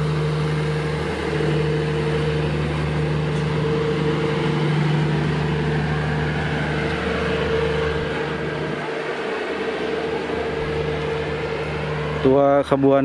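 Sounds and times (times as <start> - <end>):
constant hum: 0.0 - 13.0
diesel train engine drone: 0.0 - 13.0.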